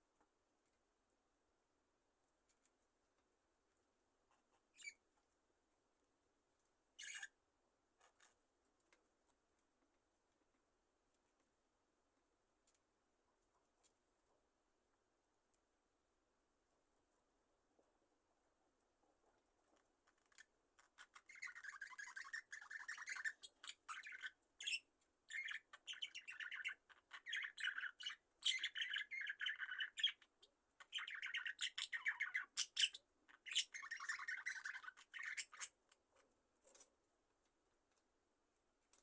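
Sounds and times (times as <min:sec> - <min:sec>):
budgerigars chirping and warbling: 0:07.0 - 0:07.3, 0:20.2 - 0:35.8.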